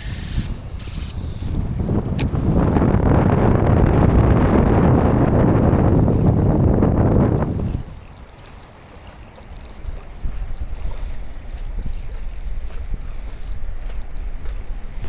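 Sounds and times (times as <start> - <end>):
wind buffeting microphone: 0.0 - 15.0
faint ticks: 7.3 - 15.0.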